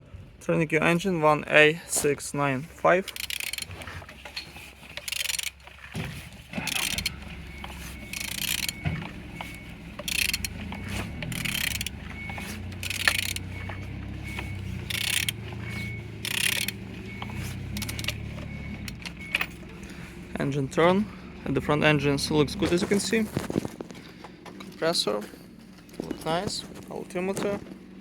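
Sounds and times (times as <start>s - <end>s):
engine mechanical clicks: 2.8s - 28.0s
wrench ratcheting: 3.0s - 5.8s, 6.6s - 7.2s, 8.0s - 8.8s, 10.0s - 13.6s, 14.4s - 18.2s.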